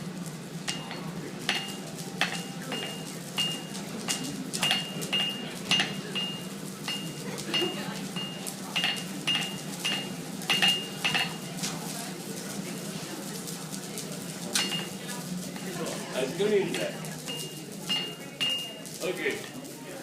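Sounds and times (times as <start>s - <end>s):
hammer striking blade on anvil: 0.7s - 11.4s, 14.6s - 15.0s, 16.7s - 18.8s.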